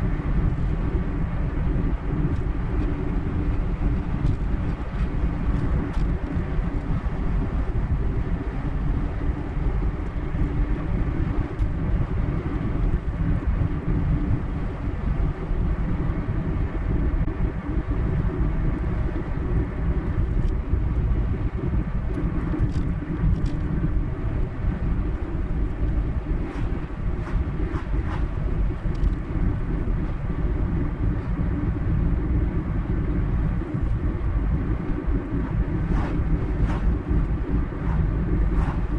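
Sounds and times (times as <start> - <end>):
tyre and road rumble: 22.3 - 38.9.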